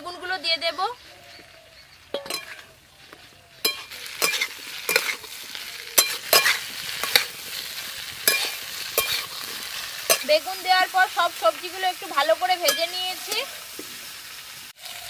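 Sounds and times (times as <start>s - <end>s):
vegetables sizzling in a wok: 0.0s - 15.0s
spatula scraping a pan: 2.1s - 10.8s.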